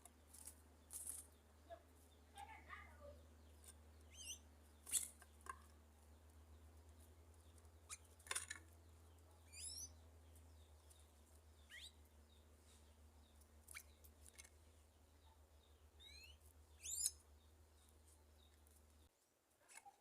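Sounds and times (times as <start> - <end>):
faint high bird calls: 1.1 - 5.7, 9.4 - 10.0, 11.6 - 12.0, 15.2 - 17.2.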